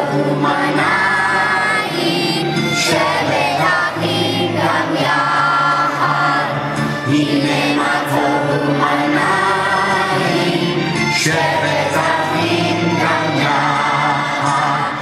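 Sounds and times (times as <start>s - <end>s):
choir singing: 0.0s - 15.0s
musical accompaniment: 0.0s - 15.0s.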